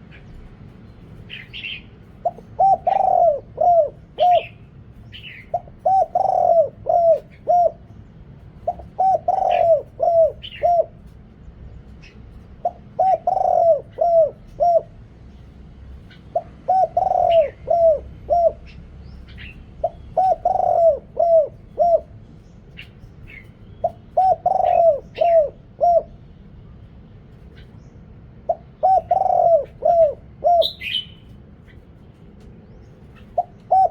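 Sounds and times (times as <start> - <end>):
small birds chirping: 0.0 - 33.9
dove cooing: 1.2 - 26.3, 28.4 - 32.1, 33.0 - 33.9
higher bird call: 28.5 - 31.8.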